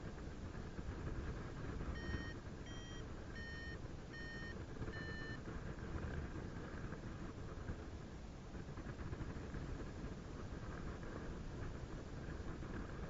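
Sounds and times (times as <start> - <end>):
wind rumble on microphone: 0.0 - 13.0
variometer beeping: 1.9 - 5.5.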